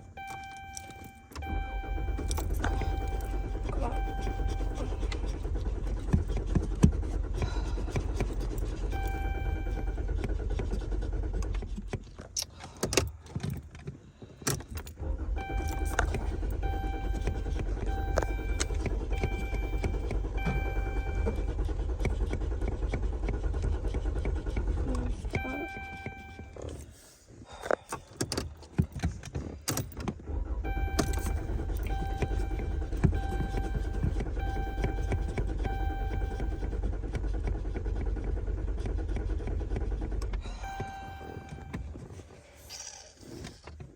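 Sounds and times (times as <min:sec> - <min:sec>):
steady electronic tone: 0:00.0 - 0:05.1
car warning chime: 0:00.0 - 0:05.4, 0:08.9 - 0:10.0, 0:15.4 - 0:21.6, 0:25.3 - 0:26.6, 0:30.7 - 0:36.8, 0:40.5 - 0:42.0
ignition clicks: 0:00.0 - 0:42.5
car starter cranking engine: 0:00.0 - 0:43.9
keys rattling: 0:00.2 - 0:05.4.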